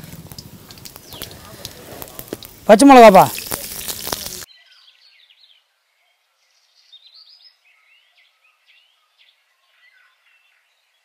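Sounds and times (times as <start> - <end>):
faint birdsong chirps: 0.6 - 1.7, 4.0 - 11.0.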